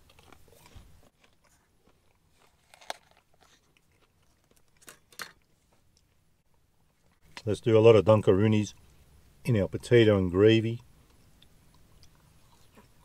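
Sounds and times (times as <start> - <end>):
faint chewing: 0.0 - 6.2, 10.9 - 13.0.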